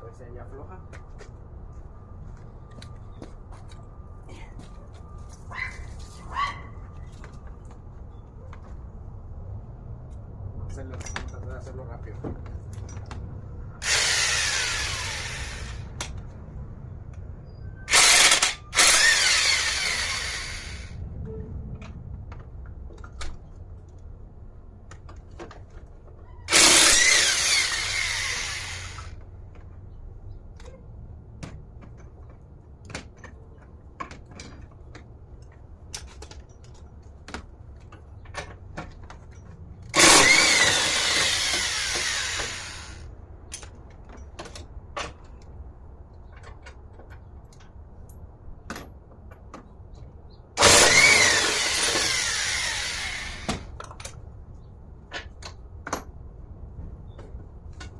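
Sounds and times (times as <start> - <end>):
power tool motor whirring: 13.8 - 15.9, 17.9 - 21.0, 26.5 - 29.2, 40.0 - 43.1, 50.6 - 53.6.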